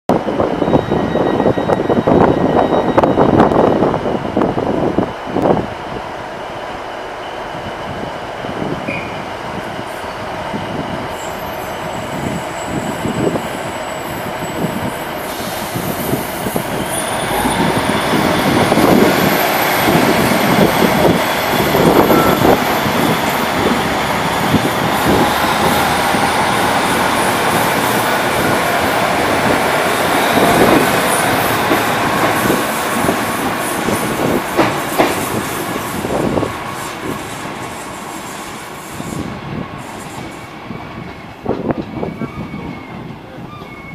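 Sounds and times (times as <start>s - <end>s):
train wheel knocks on track: 34.5s - 35.3s.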